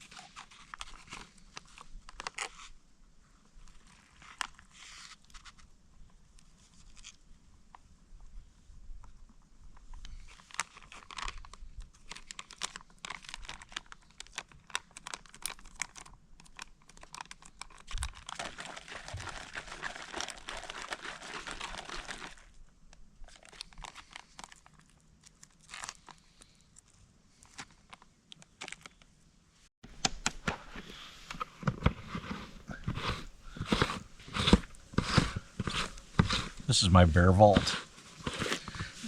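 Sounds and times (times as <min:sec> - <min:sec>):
plastic packaging crinkling: 0:10.3 - 0:22.6, 0:23.2 - 0:26.4.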